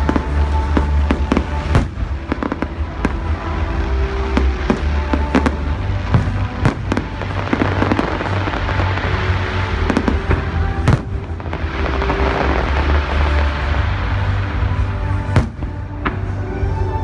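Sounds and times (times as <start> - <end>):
fireworks bangs: 0.0 - 14.4, 15.2 - 16.4
loud music with heavy bass: 0.0 - 17.0.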